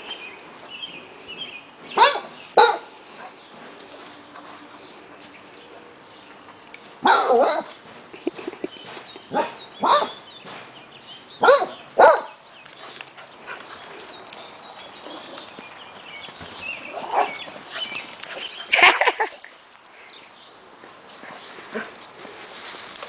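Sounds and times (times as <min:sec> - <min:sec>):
dog barking: 0:02.0 - 0:02.9, 0:07.0 - 0:07.7, 0:09.3 - 0:10.2, 0:11.4 - 0:12.4
scuffling: 0:21.5 - 0:23.0.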